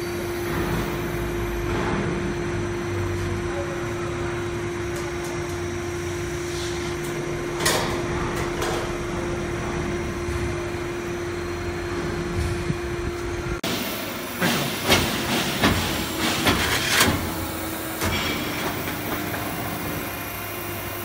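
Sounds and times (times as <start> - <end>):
machinery humming: 0.0 - 21.0.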